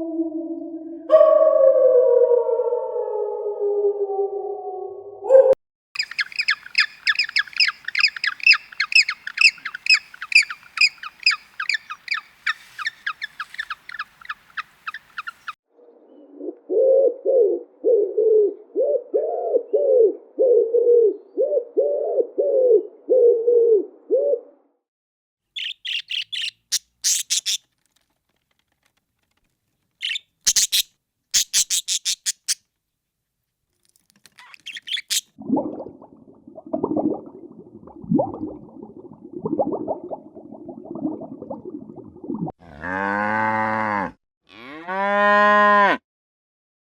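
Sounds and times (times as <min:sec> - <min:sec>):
rising and falling bird calls: 0:05.2 - 0:17.0, 0:25.6 - 0:27.6
rapid high bird chirps: 0:06.0 - 0:15.6, 0:25.5 - 0:27.6, 0:30.0 - 0:32.6, 0:34.4 - 0:35.3
sharp high bird calls: 0:06.0 - 0:15.6, 0:25.6 - 0:27.6, 0:30.0 - 0:32.6, 0:34.4 - 0:35.3.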